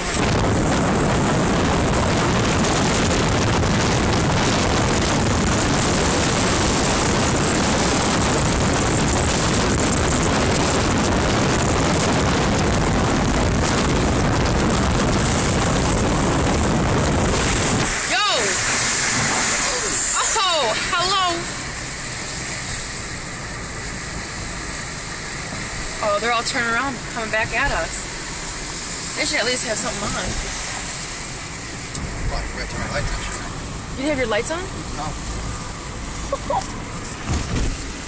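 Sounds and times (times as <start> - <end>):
car driving through floodwater: 0.0 - 38.0
water spray hissing: 17.2 - 23.1.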